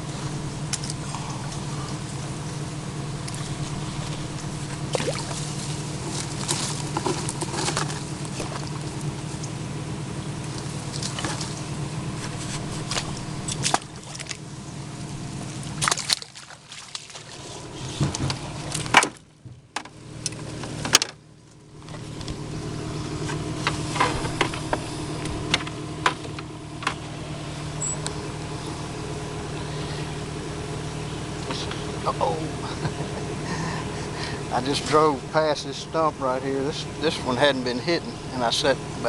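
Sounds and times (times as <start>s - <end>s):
boat motor running: 0.0s - 39.0s
water splashing: 3.2s - 7.0s, 12.6s - 14.6s, 15.3s - 17.6s.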